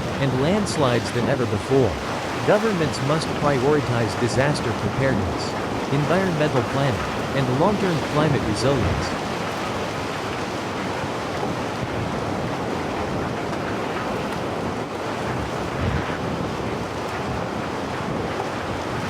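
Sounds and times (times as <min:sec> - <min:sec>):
steady dense rushing noise: 0:00.0 - 0:11.5.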